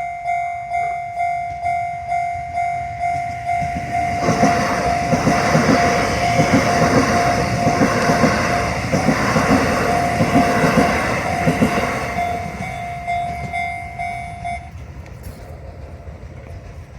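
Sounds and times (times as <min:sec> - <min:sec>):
crossing warning bell: 0:00.0 - 0:16.9
train wheels clacking: 0:01.2 - 0:16.9.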